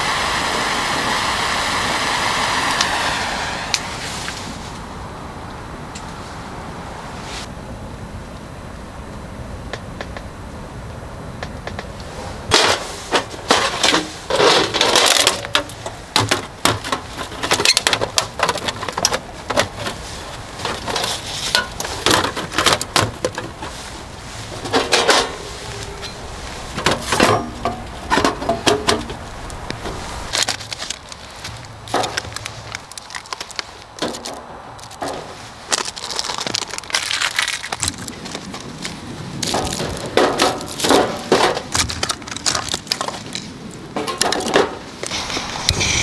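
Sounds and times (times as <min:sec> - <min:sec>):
rustling: 0:11.7 - 0:46.0
objects clattering and knocking: 0:12.5 - 0:46.0.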